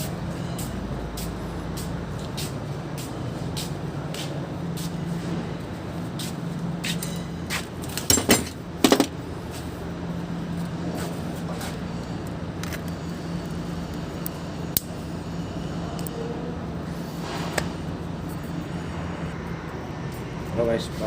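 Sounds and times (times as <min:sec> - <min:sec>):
metal tools clinking: 0:07.0 - 0:09.1.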